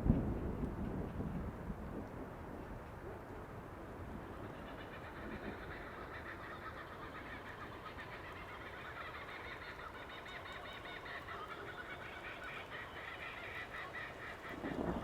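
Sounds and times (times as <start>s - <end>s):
steady background hiss: 1.4s - 15.0s
flock of birds calling: 4.0s - 15.0s.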